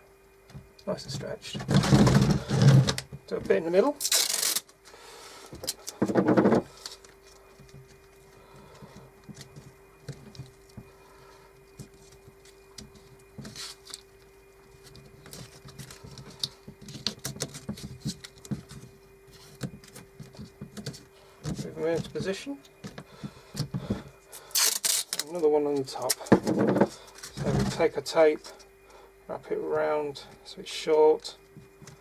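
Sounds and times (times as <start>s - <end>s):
tape and wooden strips handled: 0.6s - 28.7s
sticky tape ripping off roll: 4.0s - 4.7s, 24.5s - 25.3s.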